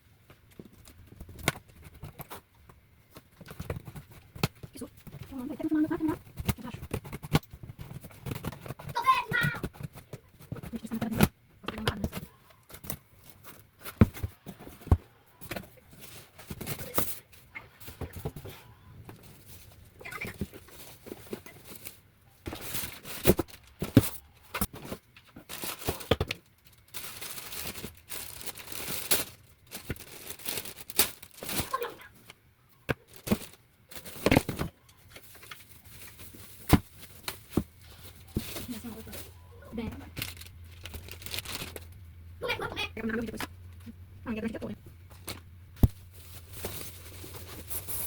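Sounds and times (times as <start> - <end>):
cardboard and plastic rustling: 0.2 - 48.0.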